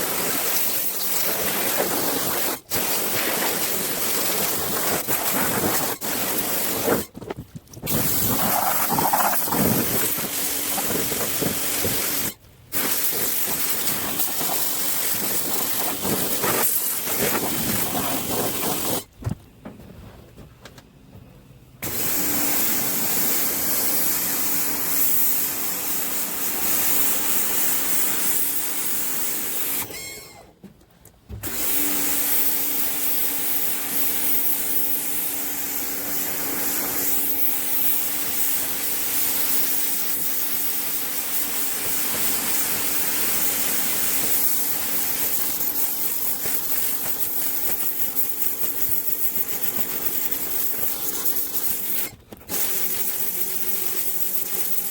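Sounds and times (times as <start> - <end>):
pressure washer spraying: 0.0 - 7.1, 7.8 - 19.1, 21.8 - 30.3, 31.4 - 54.9.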